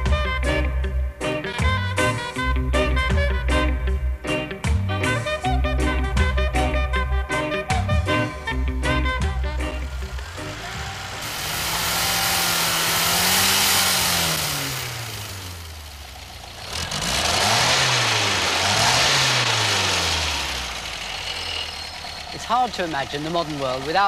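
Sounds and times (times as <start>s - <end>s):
car engine revving: 8.2s - 24.0s.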